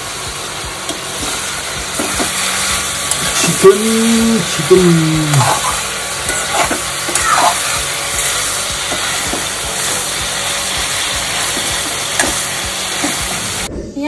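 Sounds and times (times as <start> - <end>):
curry sizzling in pan: 0.0 - 13.7.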